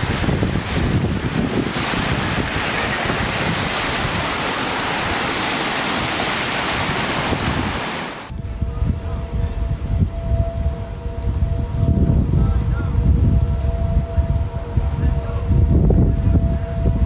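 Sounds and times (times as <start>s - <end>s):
loud steady rushing noise: 0.0s - 8.4s.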